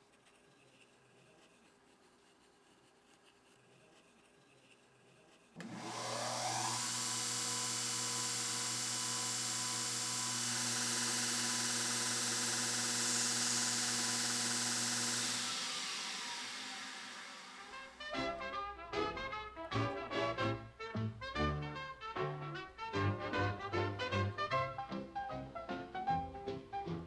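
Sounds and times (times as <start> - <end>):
small electric motor whirring: 5.6 - 18.2
airy hiss: 9.5 - 18.2.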